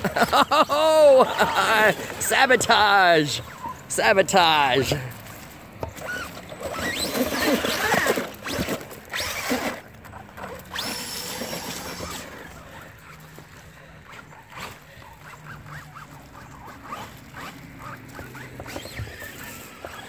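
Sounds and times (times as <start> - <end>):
electric motor whining: 5.8 - 12.8, 15.2 - 20.0.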